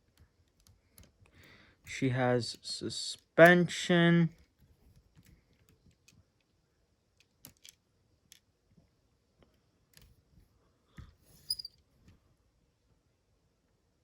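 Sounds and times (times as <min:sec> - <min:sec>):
plastic toy clicks and taps: 0:07.2 - 0:08.4.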